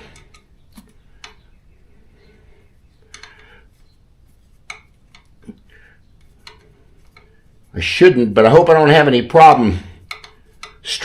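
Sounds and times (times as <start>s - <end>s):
hex wrench clicking and scraping: 3.0s - 3.6s, 4.5s - 7.5s, 10.0s - 10.9s.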